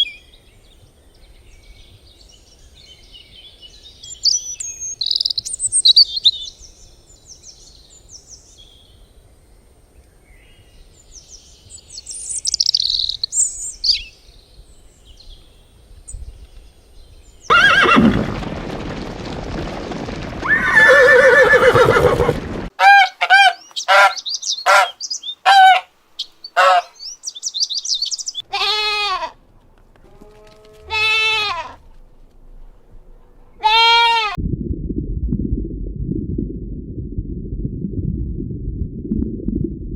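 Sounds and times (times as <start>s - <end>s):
farm animal calls: 20.8s - 25.9s, 26.6s - 26.9s.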